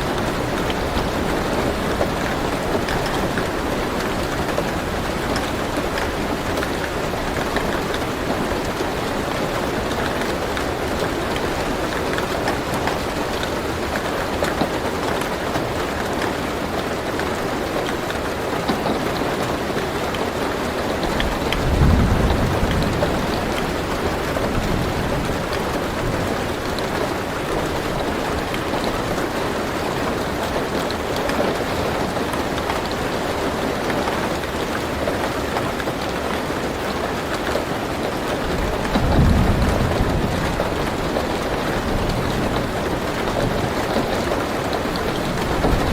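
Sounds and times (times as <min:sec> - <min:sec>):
rain on a car roof: 0:00.0 - 0:45.9
low roll of thunder: 0:21.2 - 0:28.1, 0:38.5 - 0:44.4.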